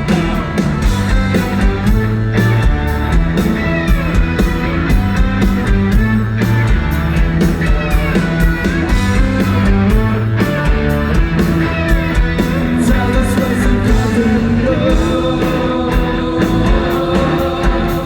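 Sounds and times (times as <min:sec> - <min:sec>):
bass guitar: 0:00.0 - 0:18.0
electric guitars bending notes: 0:00.0 - 0:18.0
steady drum beat: 0:00.0 - 0:18.0.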